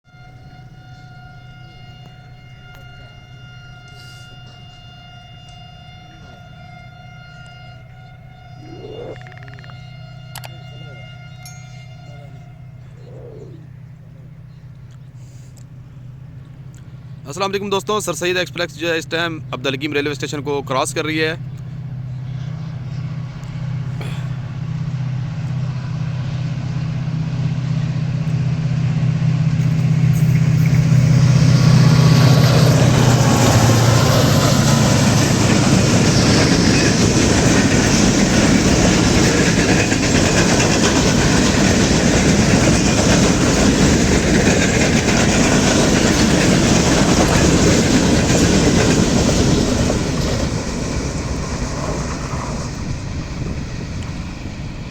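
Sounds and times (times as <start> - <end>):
train passing at high speed: 0.1 - 54.9
wheels clattering over rail joints: 26.8 - 54.9.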